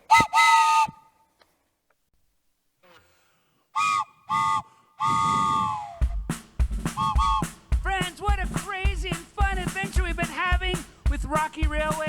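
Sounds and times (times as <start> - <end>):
two-note train whistle toots: 0.0 - 1.0, 3.8 - 6.2, 7.0 - 7.6.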